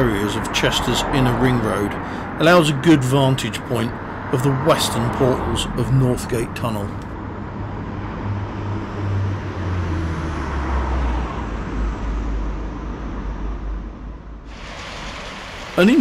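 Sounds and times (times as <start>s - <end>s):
train engines droning: 0.0s - 7.1s, 14.5s - 16.0s
road traffic hum: 0.0s - 16.0s.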